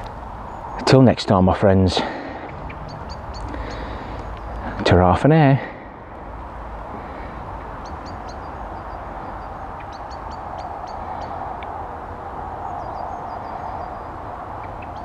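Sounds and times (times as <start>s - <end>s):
outdoor background hum: 0.0s - 15.0s
small birds chirping: 0.0s - 15.0s.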